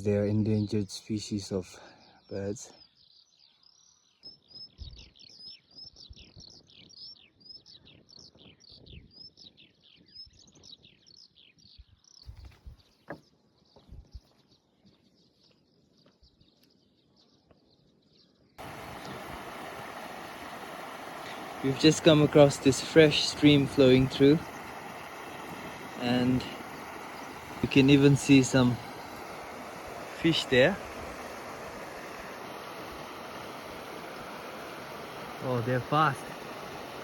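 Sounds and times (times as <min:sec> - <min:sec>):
songbird chirping: 0:00.0 - 0:37.0
mountain stream rushing: 0:18.6 - 0:37.0.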